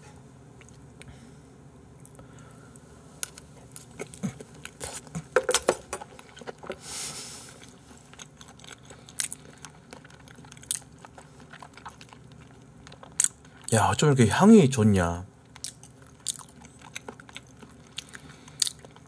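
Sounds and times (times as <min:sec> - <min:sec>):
person chewing wetly: 0:03.2 - 0:06.8, 0:07.4 - 0:13.8, 0:15.4 - 0:19.0
breathy hiss: 0:06.8 - 0:07.7.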